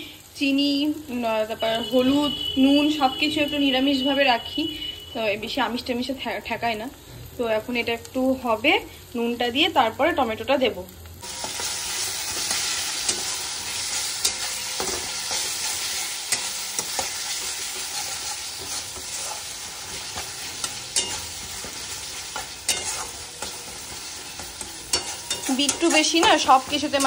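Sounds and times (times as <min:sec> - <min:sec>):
spices sizzling in a pan: 0:00.0 - 0:27.0
spatula scraping a pan: 0:11.3 - 0:27.0
spatula tapping metal: 0:12.3 - 0:27.0.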